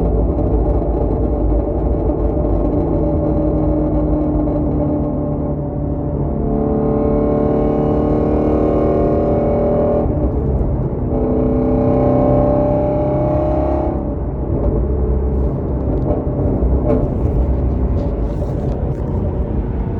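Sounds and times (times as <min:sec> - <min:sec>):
exhaust crackles and pops: 0:00.0 - 0:06.4, 0:13.9 - 0:19.9
car engine accelerating: 0:00.0 - 0:19.9.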